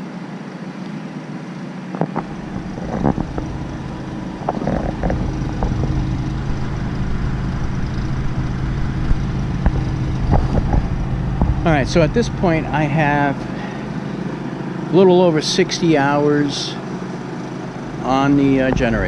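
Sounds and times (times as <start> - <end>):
generator engine hum: 0.0 - 19.0
deep low rumble: 2.2 - 14.6.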